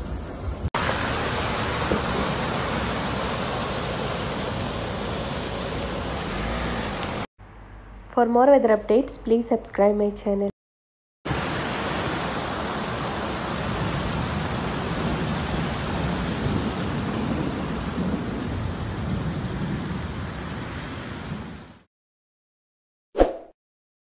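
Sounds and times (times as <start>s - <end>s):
heavy rain: 0.4s - 7.3s, 11.3s - 21.9s
low rumble of thunder: 13.8s - 20.6s.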